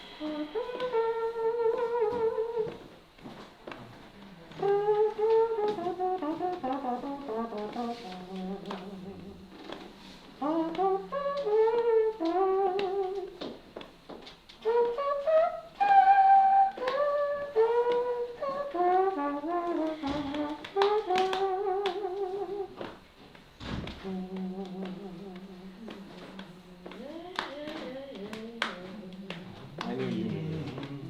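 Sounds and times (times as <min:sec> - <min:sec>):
brass-like solo melody: 0:00.0 - 0:02.9, 0:04.6 - 0:09.8, 0:10.4 - 0:13.4, 0:14.6 - 0:22.9.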